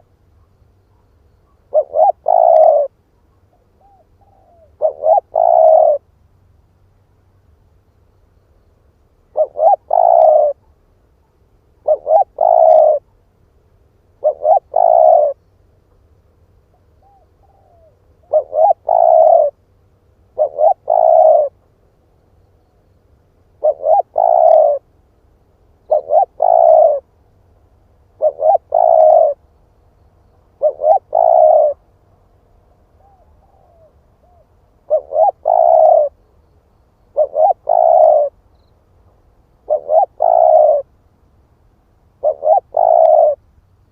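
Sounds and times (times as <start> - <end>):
dove cooing: 0.0 - 6.1, 9.3 - 10.8, 11.8 - 13.2, 14.2 - 15.4, 16.7 - 19.6, 20.3 - 21.7, 23.5 - 24.9, 25.8 - 27.2, 28.0 - 29.5, 30.5 - 31.9, 32.9 - 36.3, 37.0 - 38.7, 39.6 - 40.9, 42.2 - 43.4.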